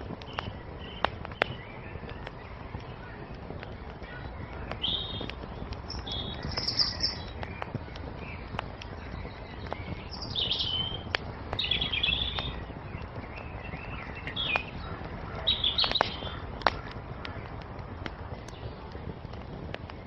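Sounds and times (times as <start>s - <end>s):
small songbirds chirping: 0.0s - 20.0s
wood fire crackling: 0.0s - 20.0s.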